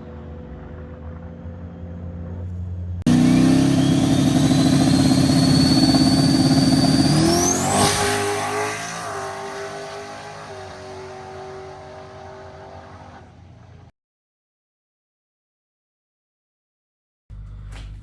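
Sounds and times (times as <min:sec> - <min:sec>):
race truck engine at high revs: 0:00.1 - 0:13.9
high whine: 0:03.1 - 0:10.0.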